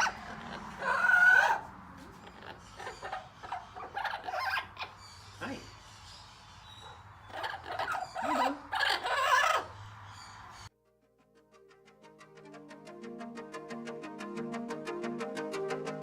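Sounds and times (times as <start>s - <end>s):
parrot chattering and squawking: 0.0s - 10.7s.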